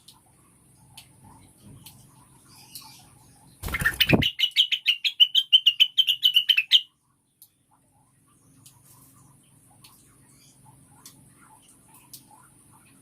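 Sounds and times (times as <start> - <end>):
bird chattering trill: 3.7 - 6.8.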